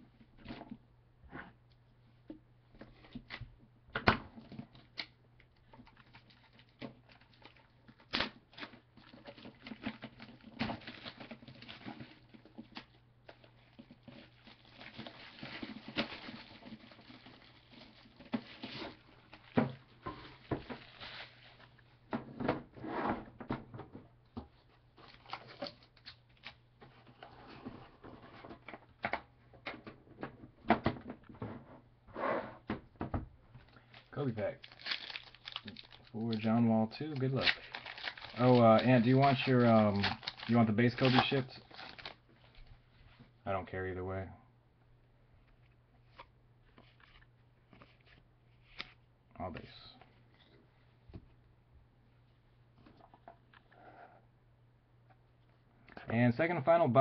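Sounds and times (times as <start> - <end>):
packaging rustling: 5.8 - 21.8, 33.6 - 42.6.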